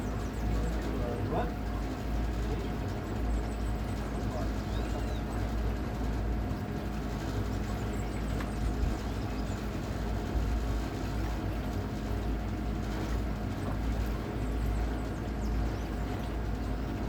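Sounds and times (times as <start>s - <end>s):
wind rumbling on microphone: 7.9s - 11.4s.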